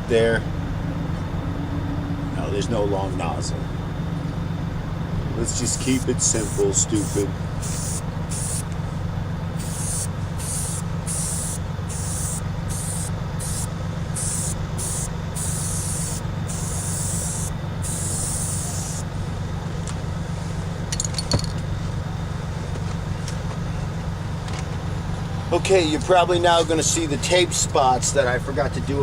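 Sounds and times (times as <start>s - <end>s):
steady low rumble: 0.0s - 22.8s
aerosol spray hissing bursts: 5.7s - 8.7s, 9.6s - 19.1s.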